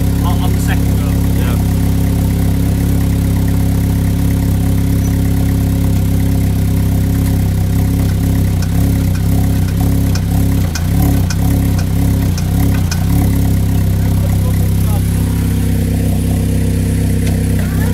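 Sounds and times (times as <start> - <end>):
car engine idling: 0.0 - 17.9
sharp engine knock: 7.2 - 14.0.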